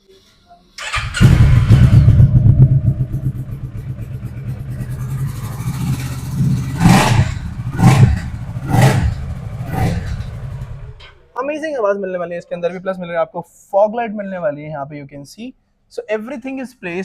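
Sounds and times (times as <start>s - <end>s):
motorcycle engine idling and revving: 0.8s - 11.3s.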